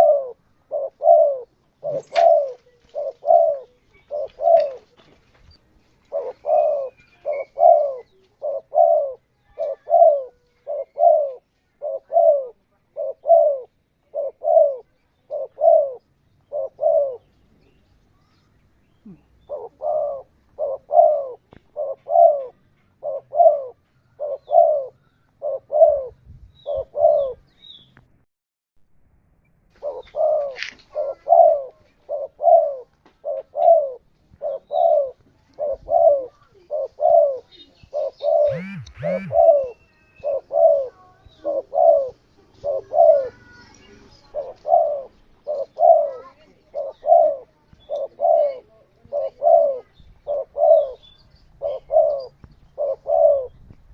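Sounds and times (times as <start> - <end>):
dove cooing: 0.0 - 5.0, 6.0 - 17.3, 19.0 - 27.5, 29.8 - 43.6, 44.2 - 51.0, 51.6 - 53.6
short high-pitched sound: 38.5 - 39.6.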